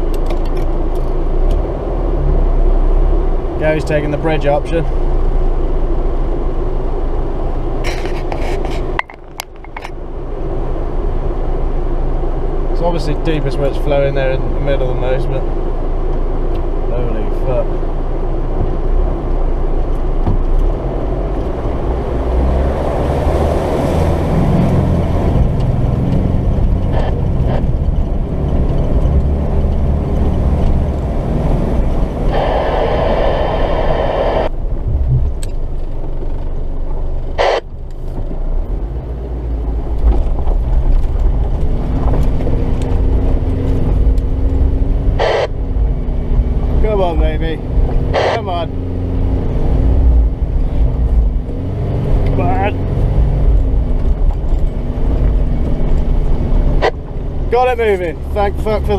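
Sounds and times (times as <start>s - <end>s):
diesel truck engine under load: 17.6s - 58.9s.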